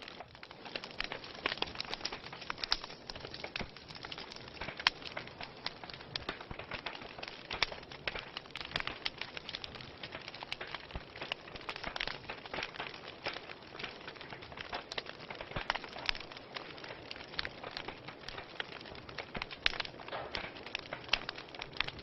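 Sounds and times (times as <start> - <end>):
fireplace fire crackling: 0.0 - 22.0.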